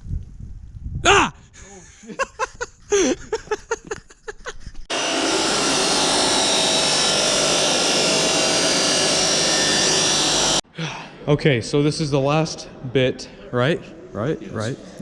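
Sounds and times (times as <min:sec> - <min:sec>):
metalworking power tool hissing: 0:04.9 - 0:10.6.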